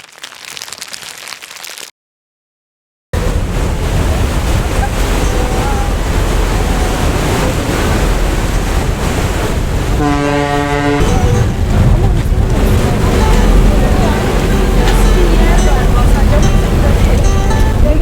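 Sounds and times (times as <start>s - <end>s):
rushing water: 3.2s - 18.0s
wind: 3.2s - 18.0s
low horn blast: 10.0s - 18.0s.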